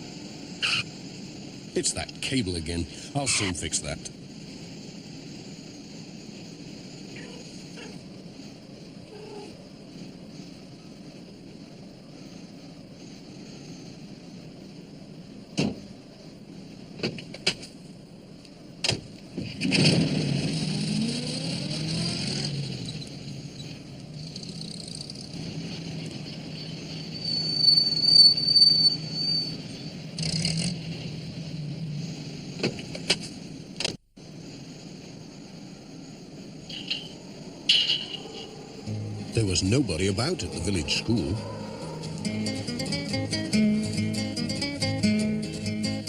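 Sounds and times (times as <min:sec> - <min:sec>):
van engine starting and running: 0:40.4 - 0:46.0.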